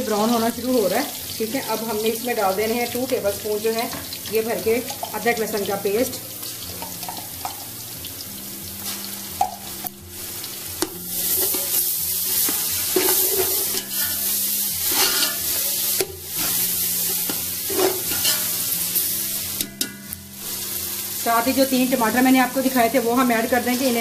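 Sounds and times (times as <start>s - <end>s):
onions sizzling in hot oil: 0.0s - 24.0s
metal spoon scraping a pot: 3.9s - 5.4s, 6.1s - 7.7s, 8.8s - 20.8s.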